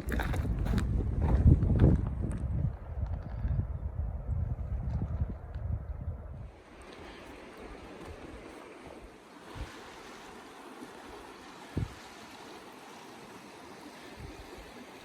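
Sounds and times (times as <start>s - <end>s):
river water rushing: 6.5s - 15.0s.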